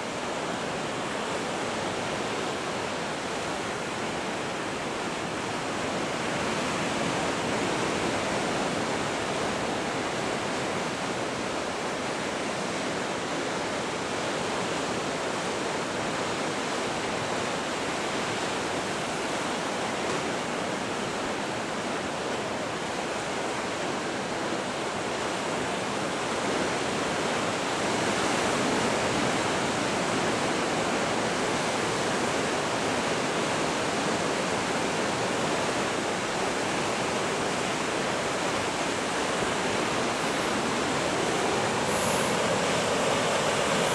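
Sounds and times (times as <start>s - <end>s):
ocean waves breaking: 28.6s - 43.9s.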